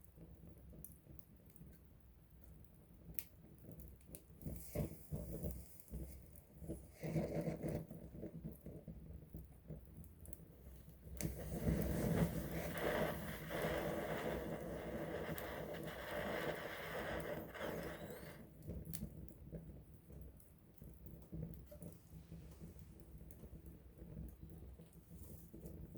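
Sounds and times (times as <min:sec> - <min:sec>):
campfire crackling and popping: 0:00.2 - 0:25.9
flames rushing: 0:11.1 - 0:19.1.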